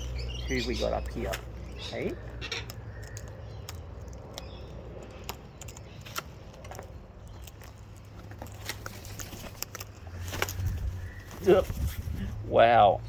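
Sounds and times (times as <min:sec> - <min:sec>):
parrots feeding clicks and crackles: 0:00.0 - 0:11.5
low steady background rumble: 0:00.0 - 0:13.0.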